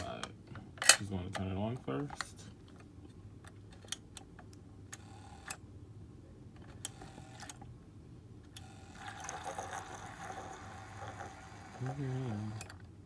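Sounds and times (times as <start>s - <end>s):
small motor whirring: 8.6s - 12.7s.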